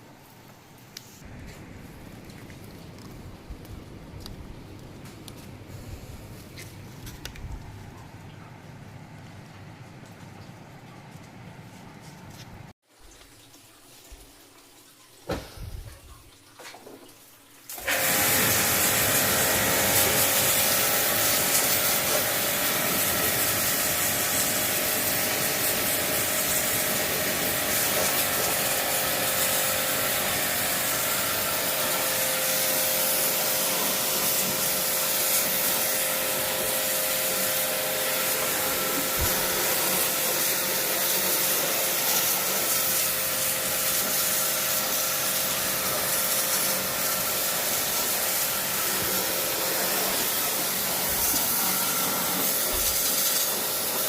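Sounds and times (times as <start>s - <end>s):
cleaning machine whining: 17.8s - 54.0s.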